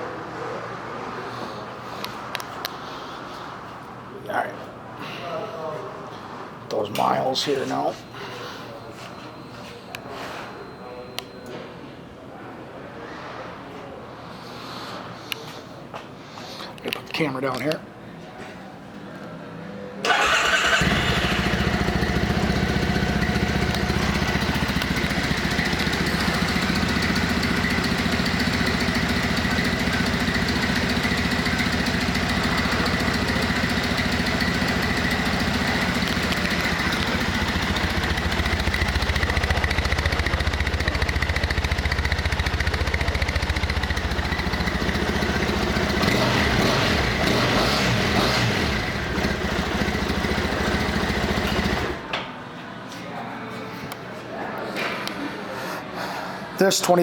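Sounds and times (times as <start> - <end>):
motorcycle engine starting and idling: 20.0 - 52.1.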